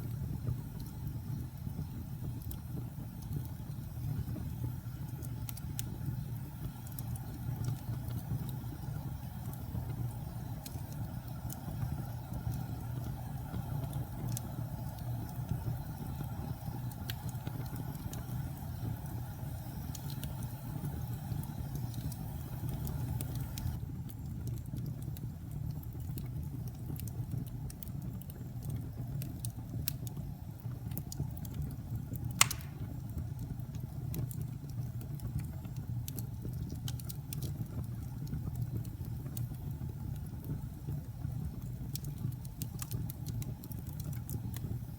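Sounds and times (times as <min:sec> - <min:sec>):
fire hissing: 0:00.0 - 0:23.8, 0:32.2 - 0:33.3
fire crackling: 0:00.0 - 0:44.9
wood fire rumbling: 0:00.0 - 0:44.9
sharp loud pop: 0:32.4 - 0:32.9.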